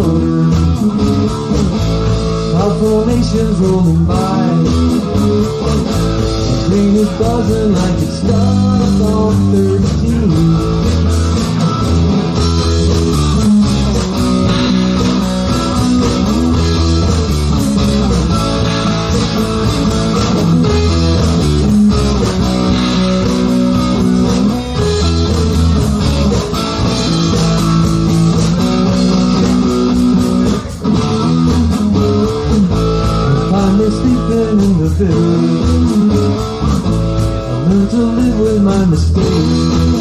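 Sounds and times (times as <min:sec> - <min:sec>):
bass guitar: 0:00.0 - 0:40.0
electric guitar: 0:00.0 - 0:40.0.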